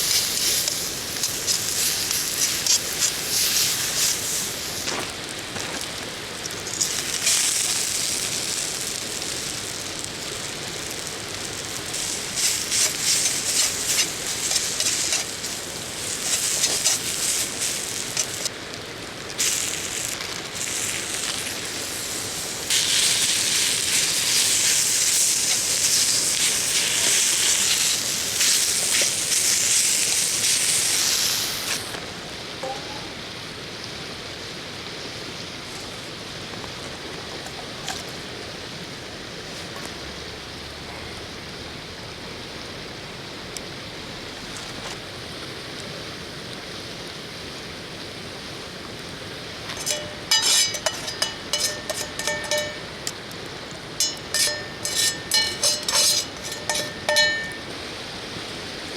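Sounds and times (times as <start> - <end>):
food sizzling in a pan: 0.0 - 36.7, 49.1 - 58.9
steady hiss: 0.0 - 58.9
ringing metallic clinks: 32.6 - 33.2, 49.8 - 53.2, 54.0 - 57.7.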